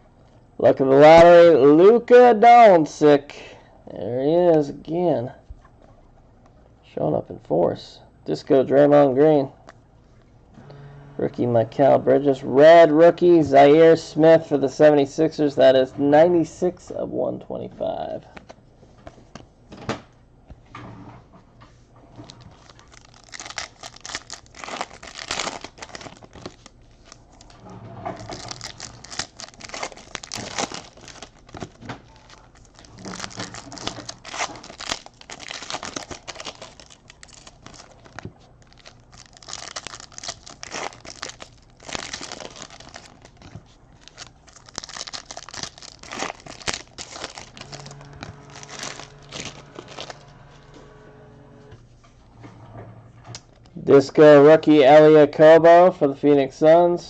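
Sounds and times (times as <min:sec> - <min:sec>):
card pack wrappers crinkling: 0:22.2 - 0:27.6, 0:28.2 - 0:51.0.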